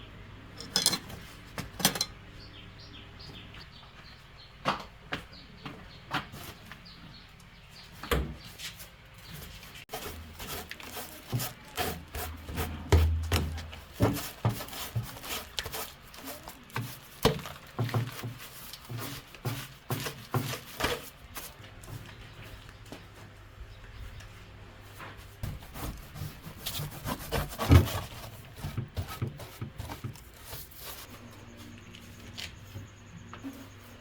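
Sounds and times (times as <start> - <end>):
hand tool knocks and scraping: 0.6 - 2.2, 8.0 - 21.2, 25.0 - 31.1.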